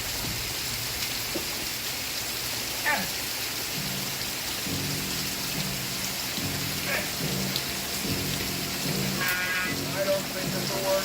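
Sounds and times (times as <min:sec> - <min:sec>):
steady rain hiss: 0:00.0 - 0:11.0
low background music notes: 0:03.8 - 0:11.0.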